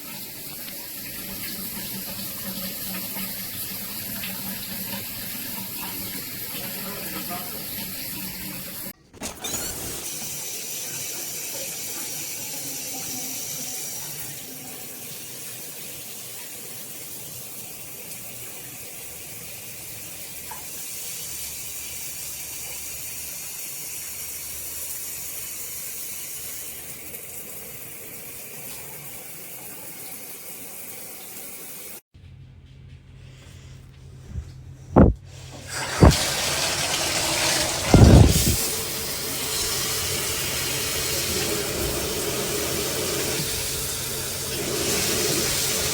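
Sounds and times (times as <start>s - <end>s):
water spraying from shower head: 35.4s - 45.9s.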